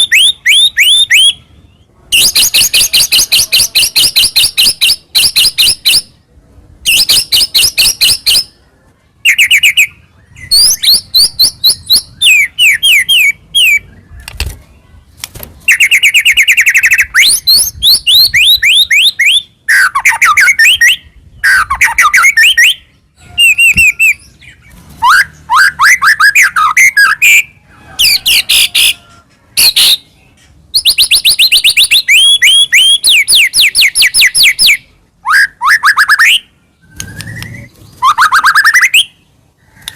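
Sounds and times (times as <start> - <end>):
bird singing chips and whistles: 0.0 - 1.4, 15.6 - 29.0, 30.7 - 39.2.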